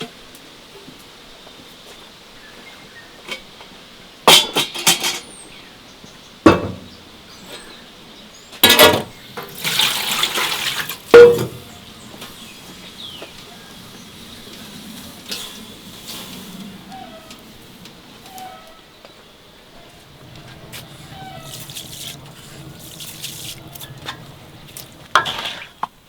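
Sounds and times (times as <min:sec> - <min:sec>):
dishes and pots clinking: 0:04.3 - 0:05.3, 0:06.5 - 0:06.9, 0:08.6 - 0:12.3, 0:20.0 - 0:25.9
water running: 0:08.6 - 0:18.3, 0:19.5 - 0:26.0.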